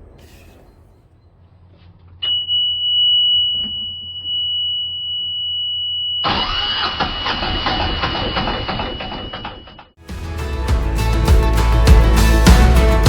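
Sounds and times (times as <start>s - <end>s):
diesel engine cranking and running: 6.3s - 9.3s.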